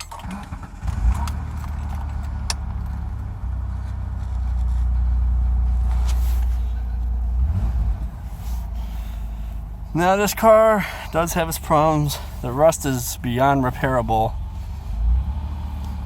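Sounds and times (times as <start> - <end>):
car engine rumbling: 0.0 - 16.0.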